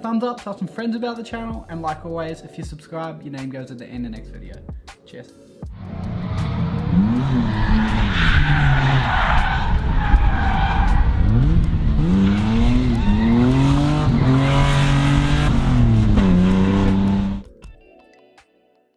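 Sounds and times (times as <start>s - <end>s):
car engine revving hard: 5.8s - 17.4s.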